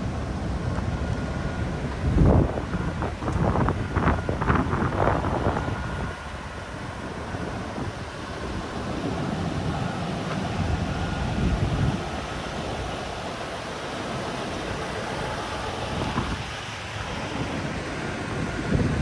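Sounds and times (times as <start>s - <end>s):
traffic noise: 0.0s - 19.0s
wind on microphone: 1.2s - 13.2s, 15.9s - 16.6s, 17.3s - 19.0s.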